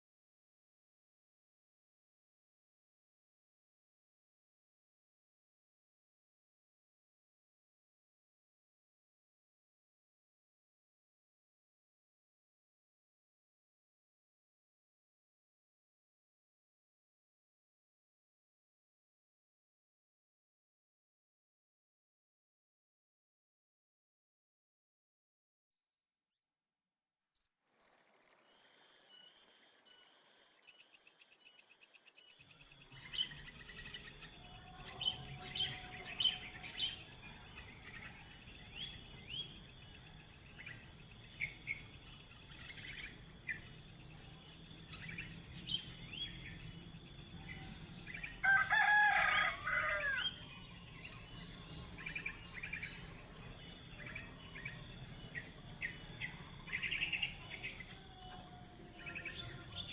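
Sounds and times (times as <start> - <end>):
small birds chirping: 27.4 - 49.2, 49.8 - 59.9
high insect drone: 27.8 - 59.9.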